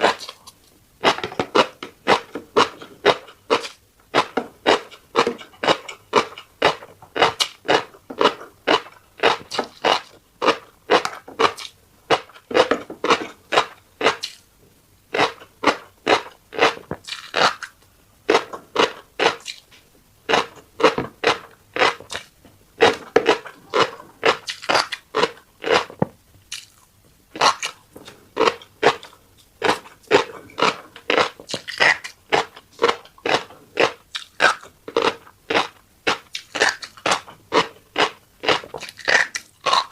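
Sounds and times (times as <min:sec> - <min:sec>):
crunchy chewing: 0:00.0 - 0:14.5, 0:15.1 - 0:39.9.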